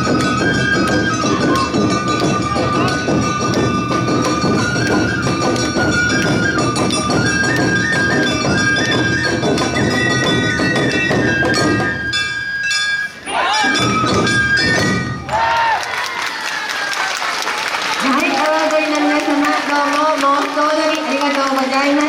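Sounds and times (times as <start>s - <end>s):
drum beats: 0.0s - 15.8s
high flute melody: 0.0s - 15.9s.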